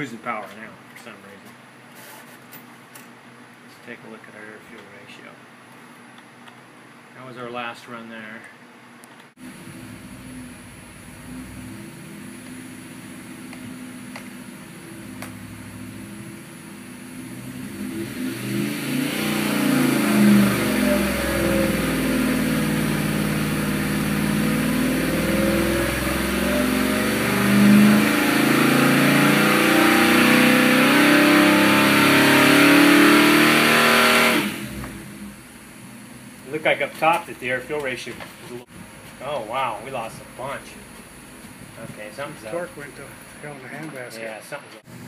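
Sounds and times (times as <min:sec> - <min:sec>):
engine revving under load: 0:09.4 - 0:35.5.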